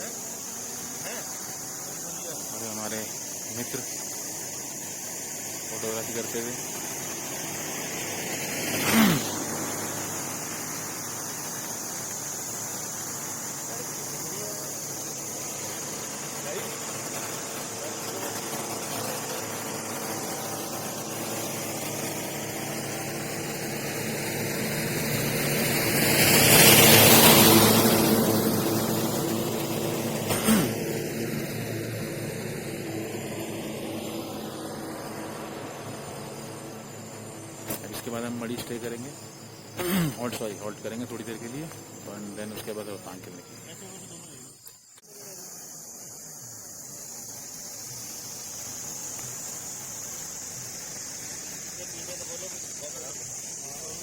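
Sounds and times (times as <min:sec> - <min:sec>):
steady background hiss: 0:00.0 - 0:54.0
vehicle passing by: 0:03.8 - 0:39.6.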